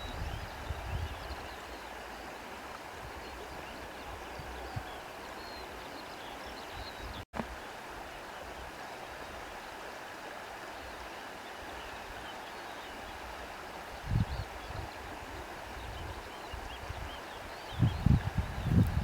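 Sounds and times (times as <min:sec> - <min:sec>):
steady wind: 0:00.0 - 0:07.3, 0:13.2 - 0:19.0.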